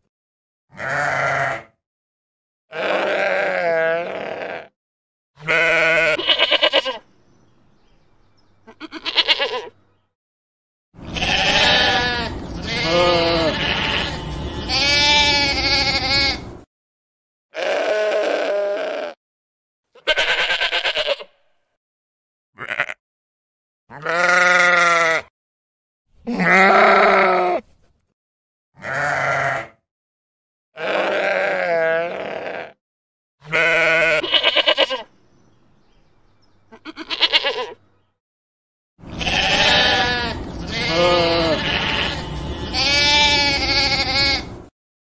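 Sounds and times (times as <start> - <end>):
sheep bleating: 0.7 - 1.8, 2.7 - 4.7, 5.4 - 7.0, 8.6 - 9.8, 11.0 - 16.6, 17.6 - 19.2, 19.9 - 21.4, 22.6 - 23.0, 23.9 - 25.3, 26.2 - 27.6, 28.8 - 29.8, 30.8 - 32.8, 33.4 - 35.1, 36.7 - 37.8, 39.1 - 44.6.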